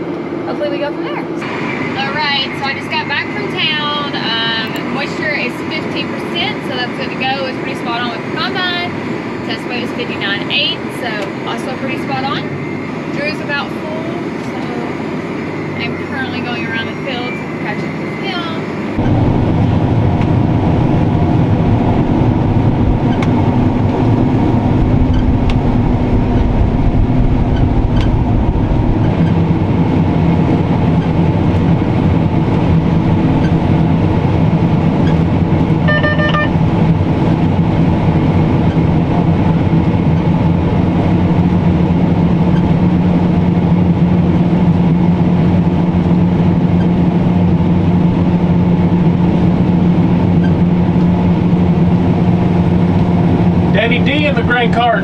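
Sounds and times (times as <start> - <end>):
diesel machinery engine drone: 0.0 - 55.0
short electronic beep: 35.9 - 36.6.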